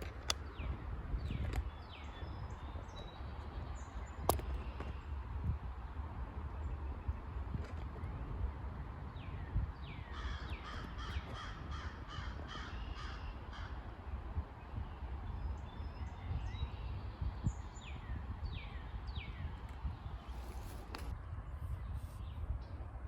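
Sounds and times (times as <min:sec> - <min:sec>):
bird calling: 0:09.9 - 0:14.0.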